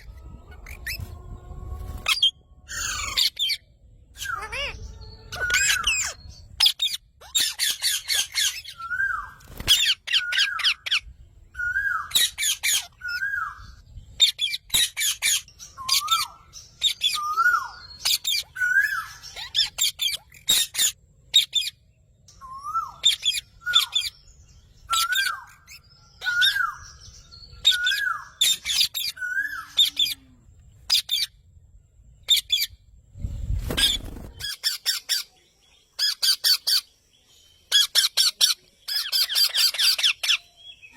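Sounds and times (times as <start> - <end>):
parrot squawking: 2.0 - 3.6, 4.2 - 8.8.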